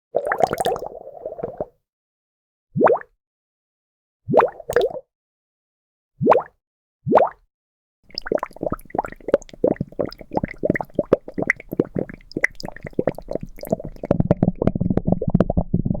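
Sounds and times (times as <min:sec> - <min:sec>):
liquid bubbling and plopping: 0:00.2 - 0:01.7, 0:04.3 - 0:05.0, 0:07.1 - 0:07.4, 0:08.1 - 0:16.0.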